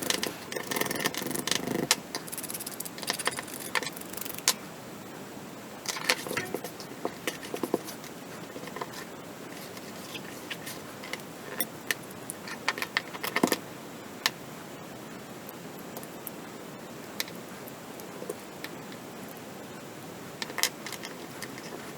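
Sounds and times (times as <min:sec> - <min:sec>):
small hard parts clicking and rattling: 0:00.0 - 0:04.6, 0:05.9 - 0:13.6, 0:20.4 - 0:21.9
steady hiss: 0:00.0 - 0:21.9.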